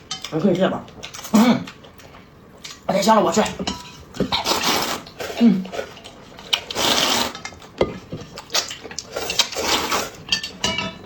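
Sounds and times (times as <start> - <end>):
noisy slurping: 4.3 - 7.4
wet chewing: 4.3 - 10.2.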